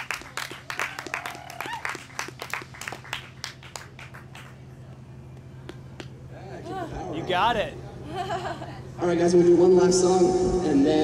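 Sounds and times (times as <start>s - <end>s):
audience clapping: 0.0s - 4.6s.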